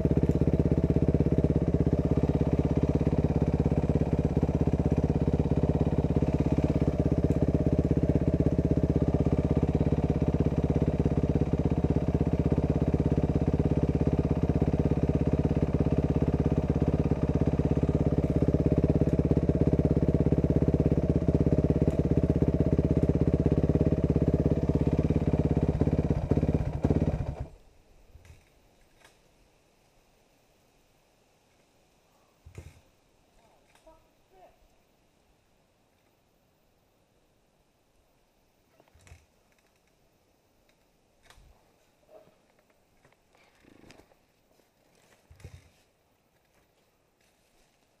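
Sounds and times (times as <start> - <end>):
motorcycle engine idling: 0.0 - 27.7.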